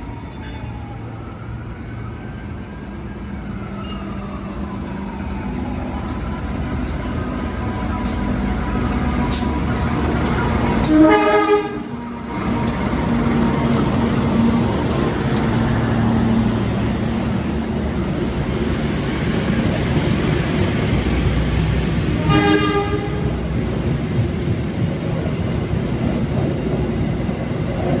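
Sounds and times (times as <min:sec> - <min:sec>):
passenger train approaching: 0:00.0 - 0:28.0
locomotive horn blast: 0:07.2 - 0:13.9, 0:22.2 - 0:23.6.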